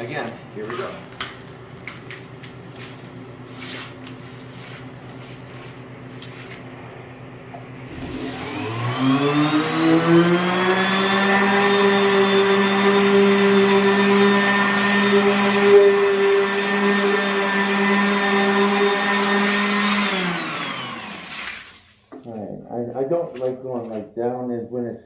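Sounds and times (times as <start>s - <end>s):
orbital sander motor whine: 7.9s - 21.4s.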